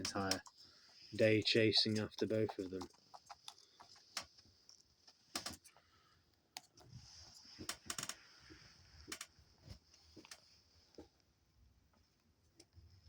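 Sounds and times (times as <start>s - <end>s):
faint clicks and taps: 0.0s - 6.9s.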